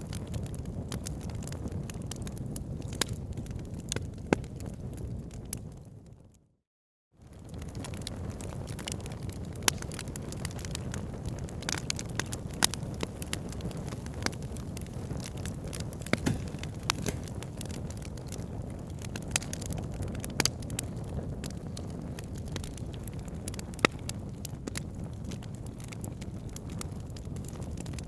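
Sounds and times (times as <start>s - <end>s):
wood fire crackling: 0.1s - 5.7s, 7.3s - 28.0s
sharp fire pops: 11.6s - 25.4s.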